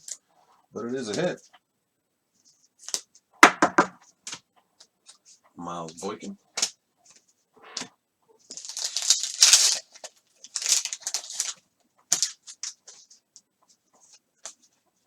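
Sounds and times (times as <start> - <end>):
foil wrapper crinkling and tearing: 8.5 - 12.8.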